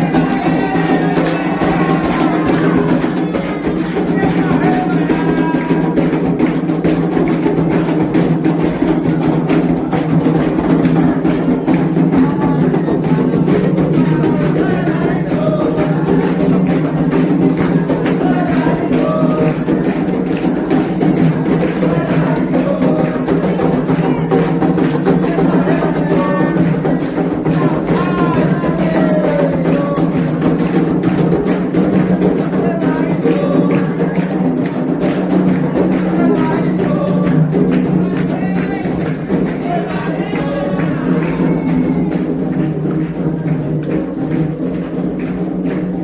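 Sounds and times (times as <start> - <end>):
hand drums: 0.0 - 46.0
voices singing a chant: 0.0 - 46.0.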